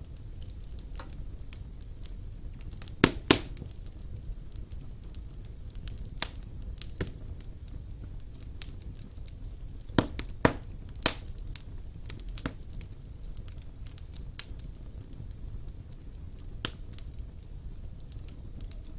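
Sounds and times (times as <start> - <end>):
low rumble of burning logs: 0.0 - 18.9
sharp pops and snaps of fire: 0.0 - 18.9
wood fire crackling: 0.0 - 18.9.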